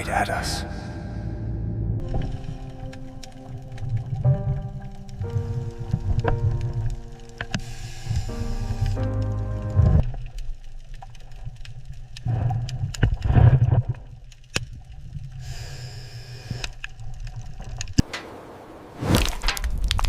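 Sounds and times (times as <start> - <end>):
background music: 0.0 - 10.0
low underwater rumbling: 0.6 - 15.1
sharp clicks and cracks: 2.0 - 7.8, 10.0 - 15.2, 16.5 - 18.4, 19.1 - 20.0
hiss of bubbles: 7.6 - 9.0.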